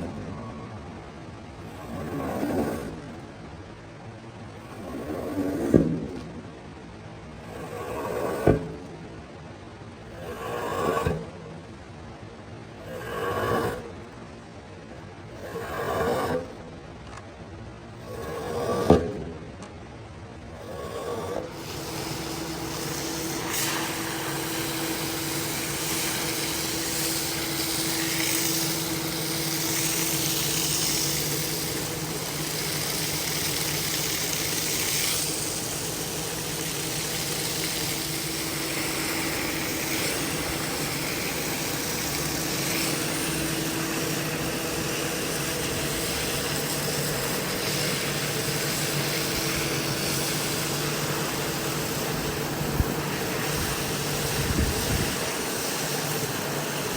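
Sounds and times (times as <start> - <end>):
carpet cleaning machine running: 20.6 - 56.9.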